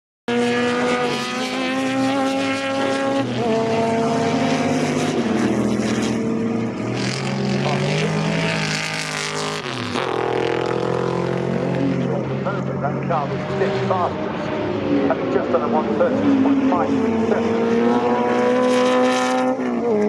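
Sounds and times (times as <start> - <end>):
racing car engines: 0.3 - 20.0.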